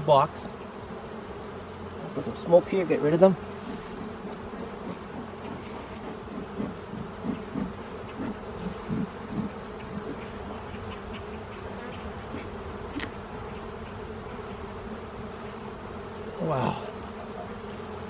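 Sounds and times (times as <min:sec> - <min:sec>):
bees buzzing: 0:00.0 - 0:18.0.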